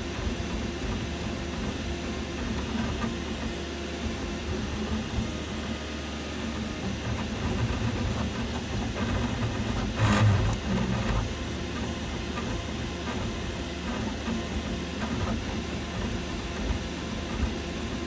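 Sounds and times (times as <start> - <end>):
three d printer running: 0.0 - 18.0.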